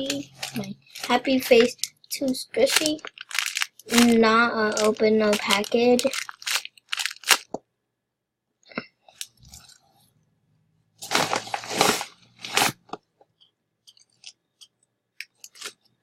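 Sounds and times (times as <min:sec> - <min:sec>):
plastic packaging crinkling: 0:00.0 - 0:07.6, 0:11.0 - 0:13.0, 0:15.2 - 0:15.9.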